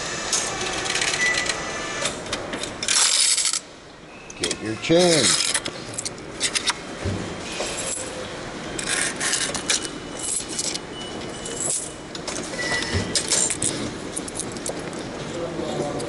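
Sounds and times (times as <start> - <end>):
coins clinking in metal tray: 11.4 - 12.0.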